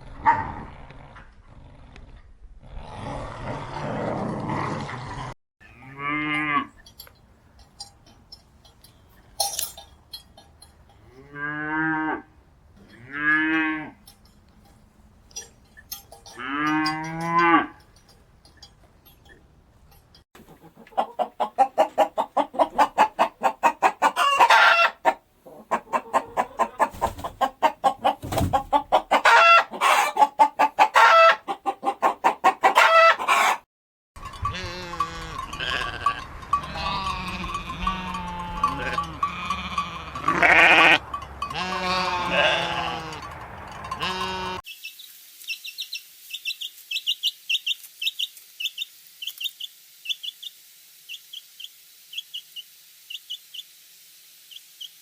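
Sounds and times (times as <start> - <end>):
cattle mooing: 5.6 - 6.8, 12.9 - 14.0, 34.6 - 43.3, 44.0 - 44.6
chickens clucking: 20.4 - 33.6.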